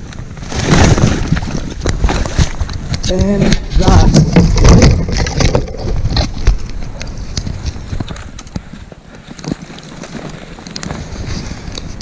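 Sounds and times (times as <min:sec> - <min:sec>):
footsteps crunching through snow: 0:06.5 - 0:12.0.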